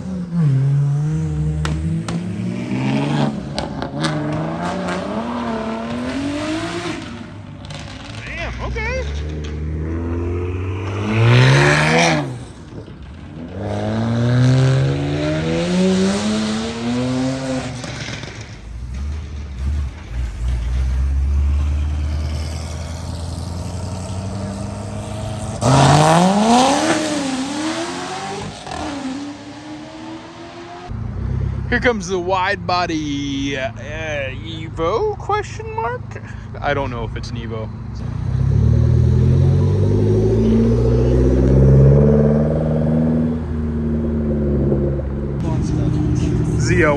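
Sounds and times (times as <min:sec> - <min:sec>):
car engines revving and accelerating: 0:00.0 - 0:35.4, 0:36.0 - 0:46.9
engine idling rumble: 0:18.0 - 0:22.4, 0:45.1 - 0:46.9.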